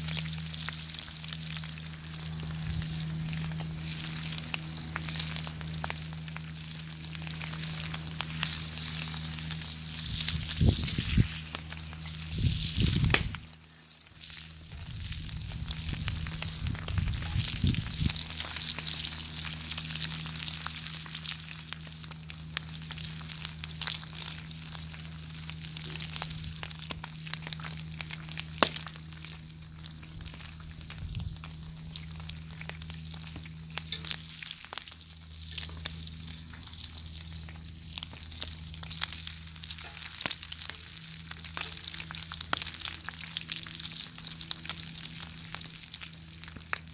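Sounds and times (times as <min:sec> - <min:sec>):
bacon sizzling in a pan: 0:00.0 - 0:46.9
steady low hum: 0:00.0 - 0:46.9
fat popping and crackling: 0:00.1 - 0:13.6, 0:24.8 - 0:43.3.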